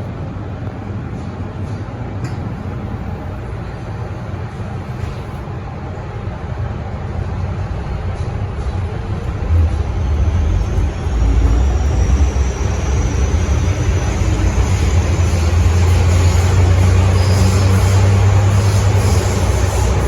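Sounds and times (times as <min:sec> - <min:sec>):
electric train rumble: 0:00.0 - 0:20.0
faint high whine: 0:09.1 - 0:20.0.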